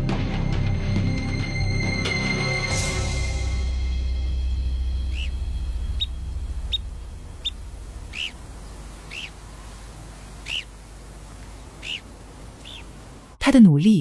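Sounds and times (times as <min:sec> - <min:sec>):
bird chirping: 0:04.4 - 0:13.4.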